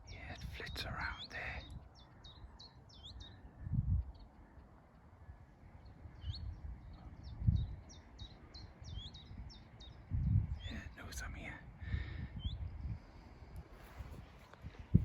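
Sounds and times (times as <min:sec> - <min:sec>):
wind thumps on microphone: 0:03.7 - 0:04.2, 0:06.2 - 0:07.9, 0:08.8 - 0:15.0.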